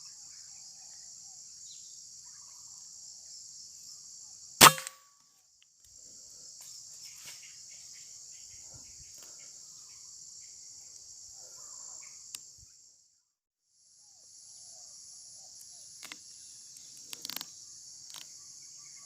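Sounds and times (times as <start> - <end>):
insects buzzing: 0.0 - 13.1, 13.8 - 19.0
sharp click: 4.6 - 5.0.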